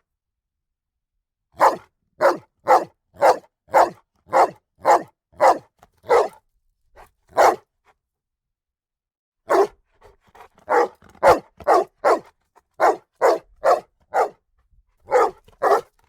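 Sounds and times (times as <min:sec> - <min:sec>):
dog barking: 0:01.6 - 0:06.4, 0:07.0 - 0:07.7, 0:09.5 - 0:09.8, 0:10.4 - 0:14.4, 0:15.1 - 0:15.9.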